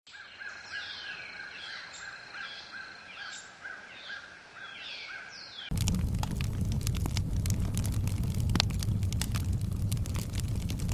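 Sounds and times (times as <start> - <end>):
wood fire crackling and popping: 5.7 - 10.9.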